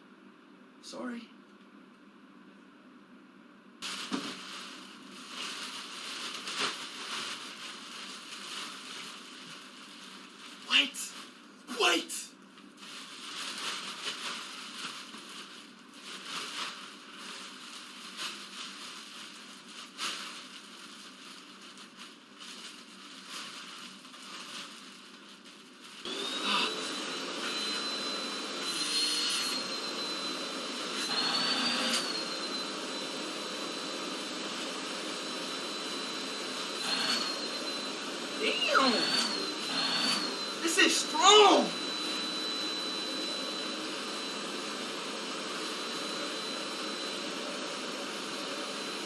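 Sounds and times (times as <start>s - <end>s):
rustling and handling noises: 3.8s - 11.7s, 12.4s - 26.0s
vacuum cleaner whining: 10.7s - 10.9s, 26.0s - 49.0s.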